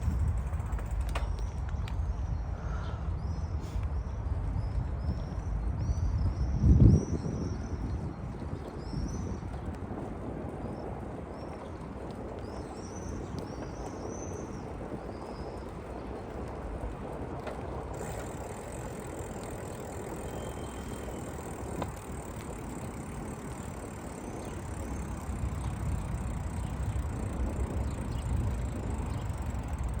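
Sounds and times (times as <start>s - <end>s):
bicycle tyres rumbling on path: 0.0s - 30.0s
birds chirping: 10.6s - 30.0s.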